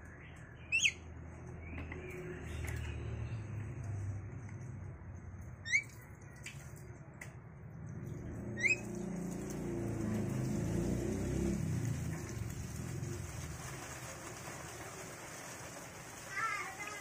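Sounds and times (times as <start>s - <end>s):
bird chirping: 0.0s - 3.6s, 5.6s - 6.1s, 8.1s - 9.1s.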